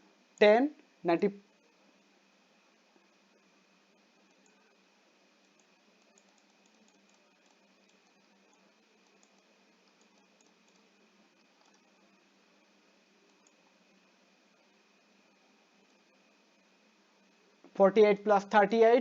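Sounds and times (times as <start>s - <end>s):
faint high hum: 0.0s - 19.0s
faint recording hiss: 0.0s - 19.0s
tiny clicks: 4.2s - 4.6s, 5.4s - 10.9s, 11.6s - 12.0s.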